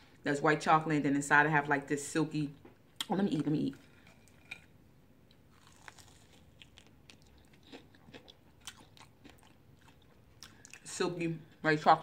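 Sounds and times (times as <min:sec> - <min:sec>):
faint crunching and chewing: 0:02.6 - 0:11.8.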